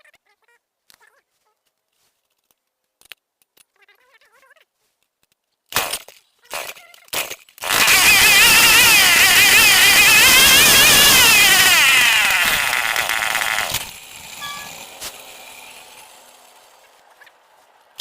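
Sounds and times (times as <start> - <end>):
chainsaw engine running: 7.6 - 18.0.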